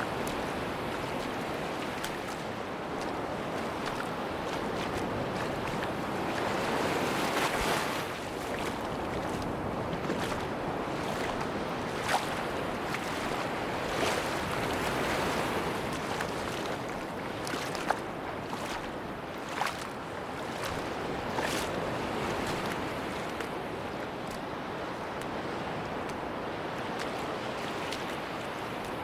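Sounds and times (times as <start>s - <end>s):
short sharp clicks and splashes: 0.0s - 16.8s, 17.4s - 23.6s, 24.2s - 24.4s
sea surf washing on beach: 0.0s - 29.0s.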